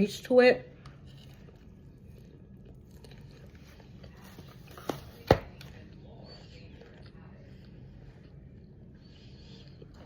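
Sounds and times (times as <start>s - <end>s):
person eating: 0.8s - 4.8s.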